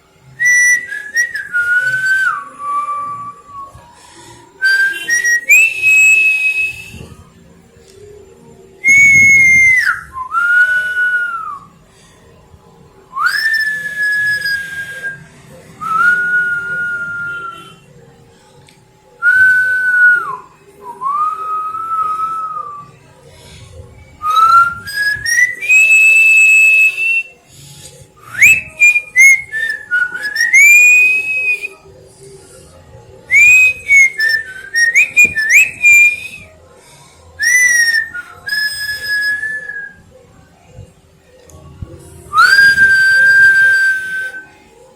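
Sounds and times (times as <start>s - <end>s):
person whistling: 0.4s - 4.0s, 4.6s - 7.3s, 8.8s - 11.7s, 23.7s - 31.8s, 33.3s - 36.5s, 42.3s - 44.6s.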